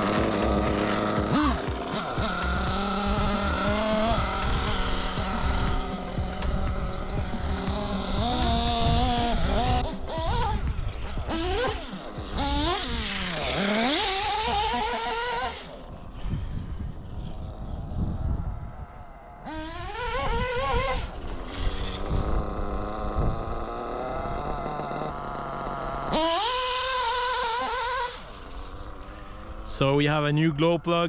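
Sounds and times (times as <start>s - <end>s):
rc engine revving: 0.0s - 30.3s.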